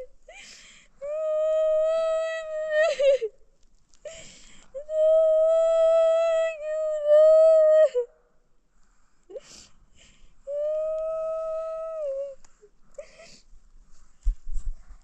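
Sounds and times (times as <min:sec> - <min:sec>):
sharp gasping breath: 0:04.1 - 0:04.8.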